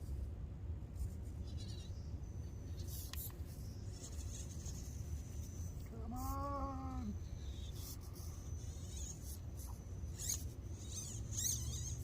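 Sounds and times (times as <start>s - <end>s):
toy car motor whine: 2.6s - 12.0s.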